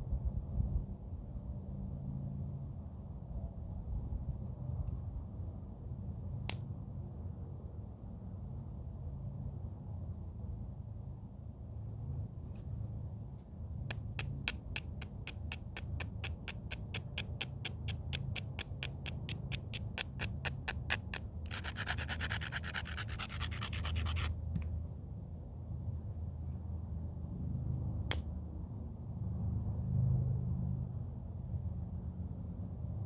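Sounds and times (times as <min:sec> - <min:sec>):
stone scraping flint: 0:13.9 - 0:24.7.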